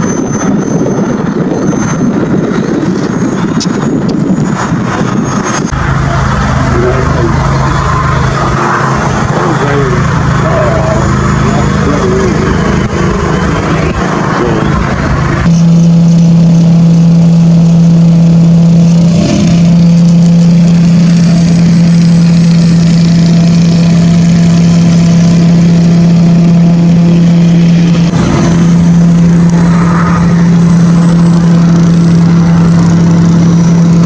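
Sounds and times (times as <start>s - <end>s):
engine droning steadily: 0.0s - 34.0s.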